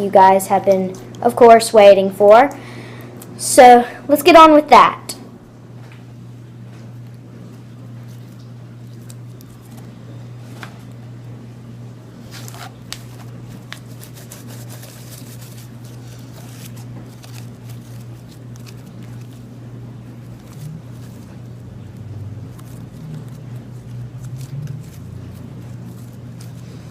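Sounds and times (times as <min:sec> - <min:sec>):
steady low hum: 0:00.0 - 0:26.9
hands squishing slime: 0:22.4 - 0:26.9.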